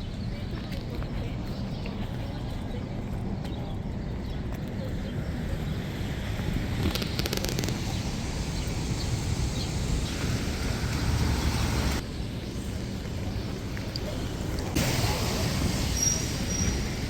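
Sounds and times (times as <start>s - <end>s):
passing vehicles rumble and hiss: 4.8s - 17.0s.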